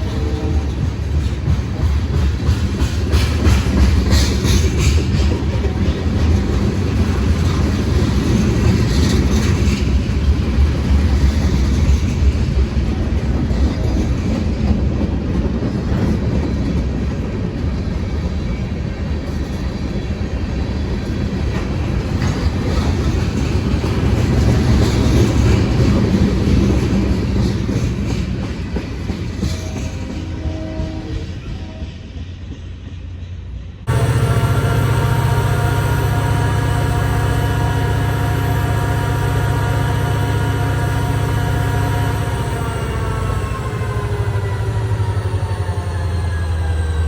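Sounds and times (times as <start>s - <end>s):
diesel locomotive engine straining: 0.0s - 47.0s.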